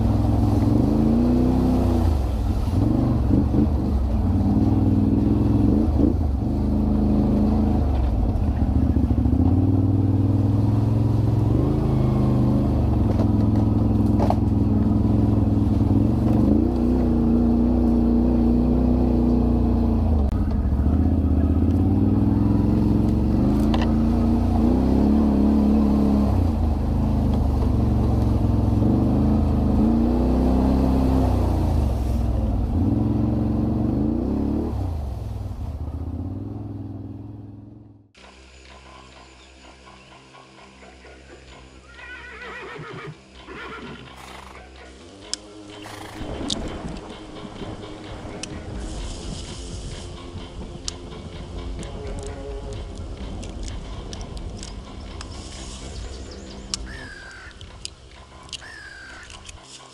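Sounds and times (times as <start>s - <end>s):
atv engine revving: 0.0s - 38.1s.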